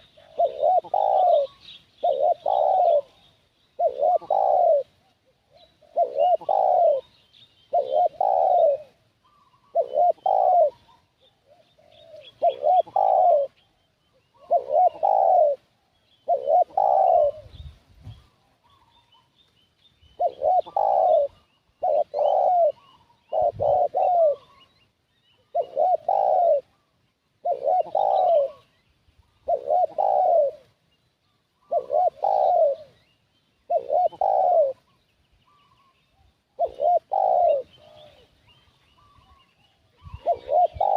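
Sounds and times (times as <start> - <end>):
dove cooing: 0.0 - 19.4, 20.1 - 30.8, 31.5 - 40.9
small birds chirping: 0.0 - 40.9.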